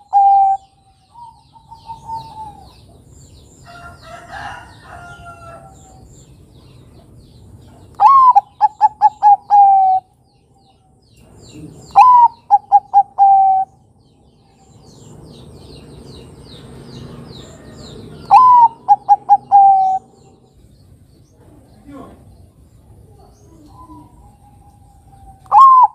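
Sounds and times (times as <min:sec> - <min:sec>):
dove cooing: 0:00.0 - 0:03.1, 0:08.0 - 0:10.1, 0:11.5 - 0:13.8, 0:17.5 - 0:20.5, 0:23.0 - 0:25.9
faint high bird chirping: 0:00.0 - 0:25.9.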